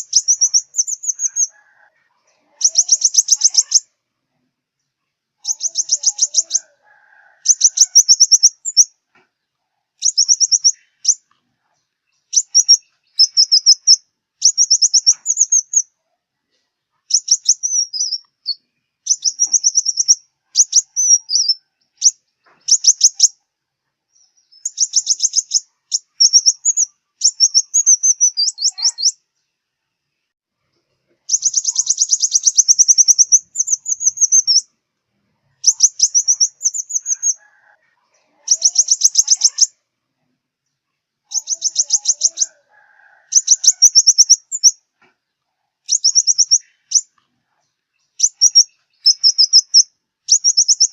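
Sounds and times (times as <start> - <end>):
sunbird trilling song: 0.0 - 1.6, 2.4 - 4.0, 5.4 - 6.8, 7.4 - 9.0, 10.0 - 11.3, 12.0 - 15.9, 17.1 - 23.4, 24.1 - 29.2, 31.3 - 34.7, 35.5 - 37.4, 38.3 - 39.8, 41.2 - 42.6, 43.3 - 44.8, 45.8 - 47.2, 47.9 - 50.9.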